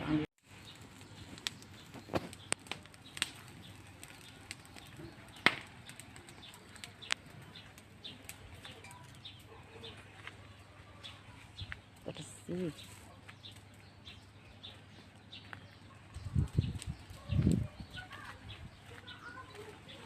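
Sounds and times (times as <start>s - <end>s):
fire crackling and popping: 0.1s - 20.0s.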